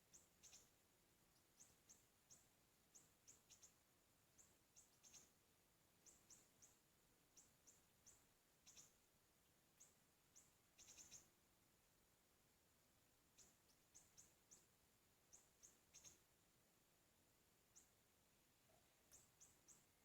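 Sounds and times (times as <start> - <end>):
bird chirps: 0.1 - 0.7, 1.4 - 5.4, 6.0 - 9.0, 9.8 - 11.3, 13.3 - 14.7, 15.3 - 16.3, 18.6 - 20.0.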